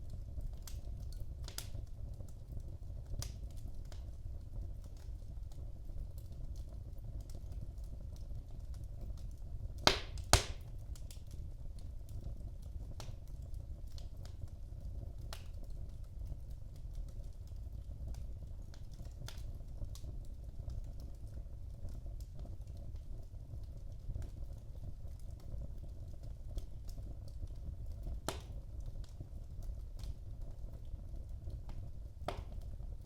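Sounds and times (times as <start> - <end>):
wood fire crackling: 0.0 - 33.0
loud sharp fire pops: 9.8 - 10.8, 28.3 - 28.6, 32.3 - 32.6.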